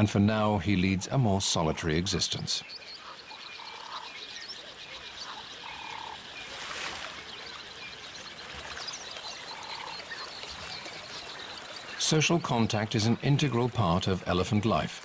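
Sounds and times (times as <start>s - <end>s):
frog croaking: 2.8s - 6.4s, 9.4s - 10.4s.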